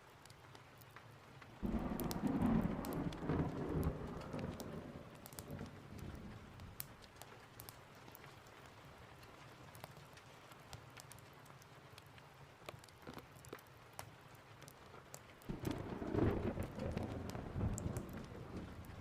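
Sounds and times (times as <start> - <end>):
steady rain: 0.0 - 19.0
thunder rumble: 1.6 - 6.8, 15.5 - 19.0
fireplace crackling pops: 12.0 - 19.0.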